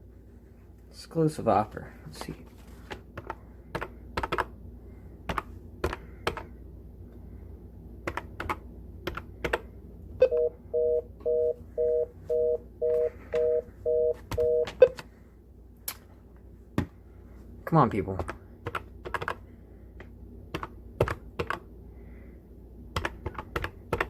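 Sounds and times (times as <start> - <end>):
telephone two-tone beeping: 10.2 - 15.0.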